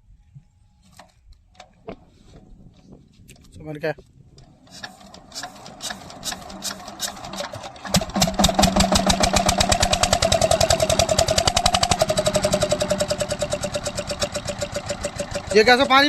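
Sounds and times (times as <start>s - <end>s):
diesel engine cranking and running: 4.4s - 16.0s.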